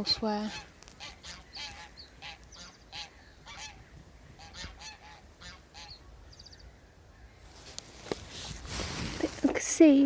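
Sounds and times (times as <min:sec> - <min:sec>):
geese honking: 0:00.1 - 0:06.2
small bird trill: 0:05.8 - 0:07.4.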